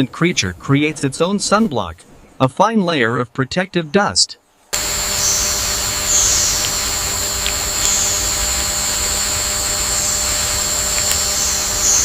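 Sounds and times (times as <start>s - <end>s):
low rumbling hiss: 0.0s - 12.0s
high insect drone: 4.8s - 12.0s.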